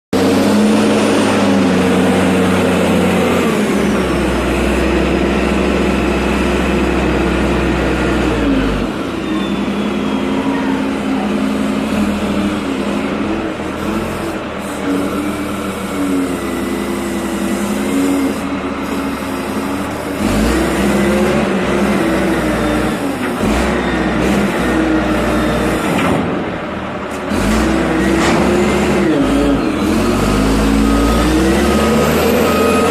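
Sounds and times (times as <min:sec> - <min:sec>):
diesel engine revving: 0:00.1 - 0:32.9.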